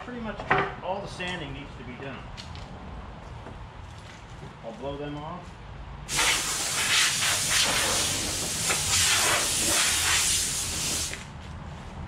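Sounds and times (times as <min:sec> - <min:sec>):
compressed air hissing: 0:06.1 - 0:11.3.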